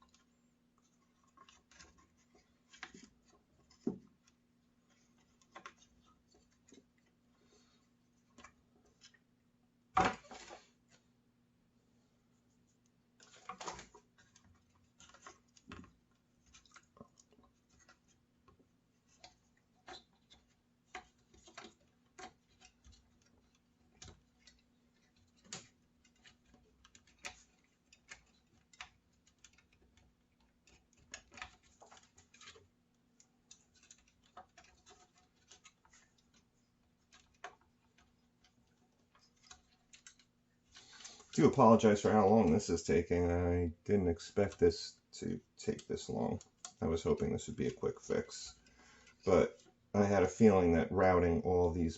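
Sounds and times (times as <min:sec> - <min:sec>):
small clicks and taps of parts: 0:13.2 - 0:41.4.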